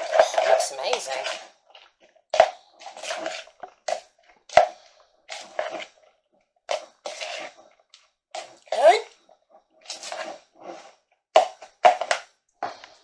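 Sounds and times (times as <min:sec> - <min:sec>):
spoon stirring wet mixture: 0:00.0 - 0:13.0.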